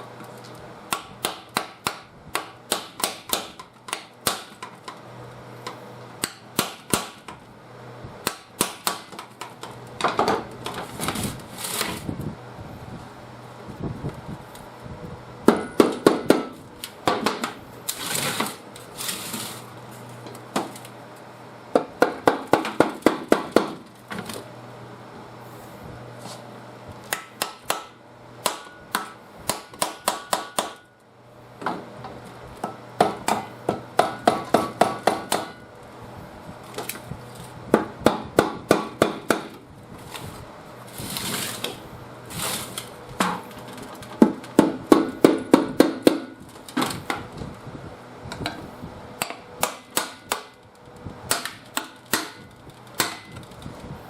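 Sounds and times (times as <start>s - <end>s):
hammer striking metal: 27.1s - 30.9s, 32.6s - 35.6s, 51.3s - 52.4s, 53.0s - 53.3s.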